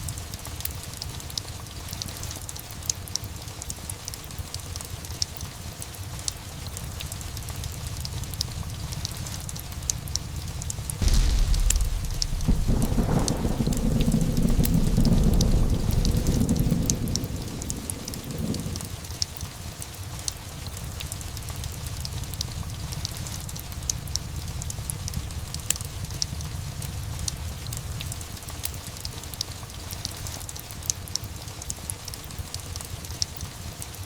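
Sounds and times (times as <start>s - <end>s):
steady rain: 0.0s - 34.0s
fireplace crackling: 7.0s - 19.0s
low roll of thunder: 11.0s - 19.1s.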